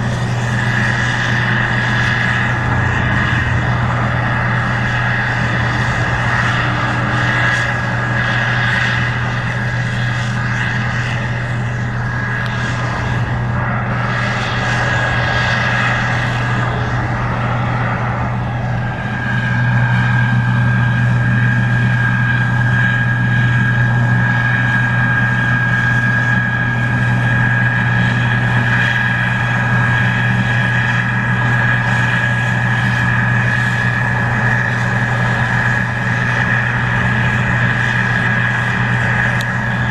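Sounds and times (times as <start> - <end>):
constant high whine: 0.0 - 39.9
heavy engine drone: 0.0 - 39.9.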